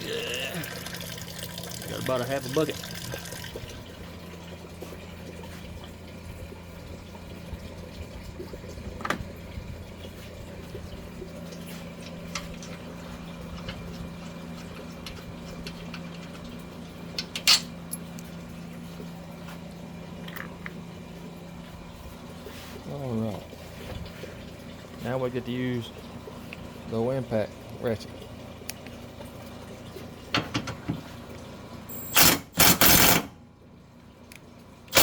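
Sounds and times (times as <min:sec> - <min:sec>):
liquid draining into bucket: 0:00.0 - 0:16.8.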